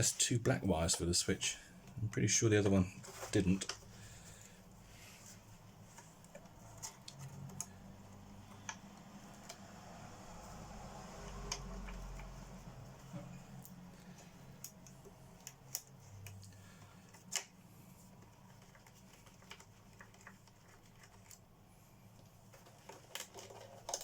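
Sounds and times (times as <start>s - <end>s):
small parts clicking and tapping: 22.2s - 24.0s.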